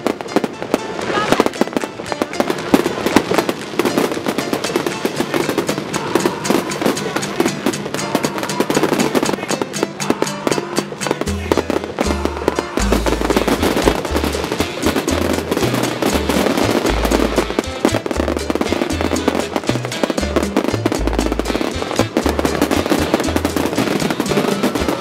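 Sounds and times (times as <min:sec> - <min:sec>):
fireworks crackling and banging: 0:00.0 - 0:25.0
music with deep bass line: 0:09.2 - 0:25.0.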